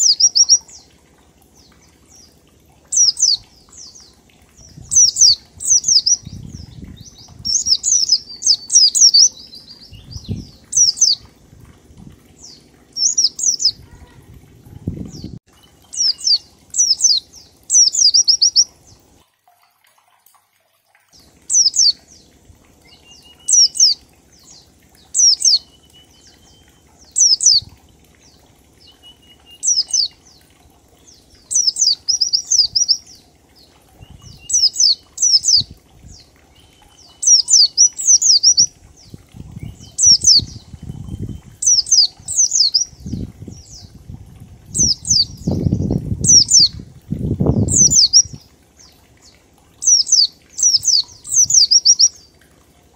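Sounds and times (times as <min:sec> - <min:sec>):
bird singing rapid high notes: 0:00.0 - 0:00.9, 0:02.9 - 0:11.2, 0:12.4 - 0:14.2, 0:15.1 - 0:18.7, 0:21.5 - 0:22.0, 0:22.9 - 0:27.7, 0:28.8 - 0:30.2, 0:31.5 - 0:33.1, 0:34.0 - 0:38.8, 0:39.6 - 0:43.9, 0:44.7 - 0:46.8, 0:47.5 - 0:48.4, 0:49.8 - 0:52.2.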